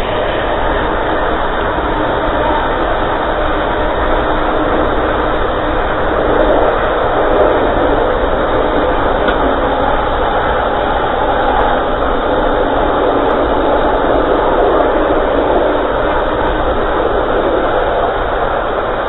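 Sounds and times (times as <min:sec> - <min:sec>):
train wheels rolling on rails: 0:00.0 - 0:19.0.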